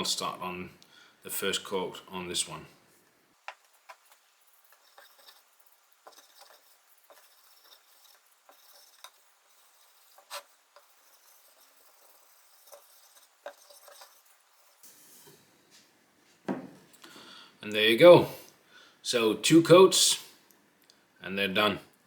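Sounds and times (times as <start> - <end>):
light taps and scrapes: 2.9 - 17.0
rubbing wax into wooden board: 3.5 - 14.8.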